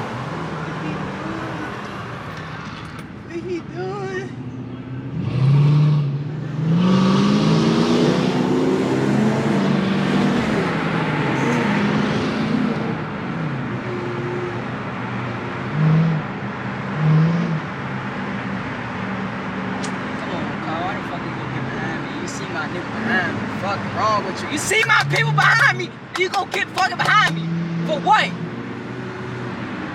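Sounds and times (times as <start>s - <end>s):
car engine accelerating: 24.6s - 29.9s.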